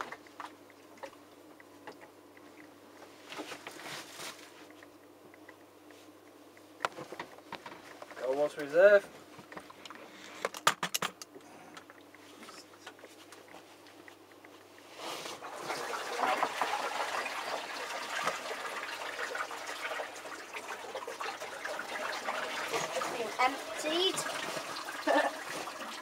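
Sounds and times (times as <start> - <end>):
water trickling and splashing: 15.4 - 26.0.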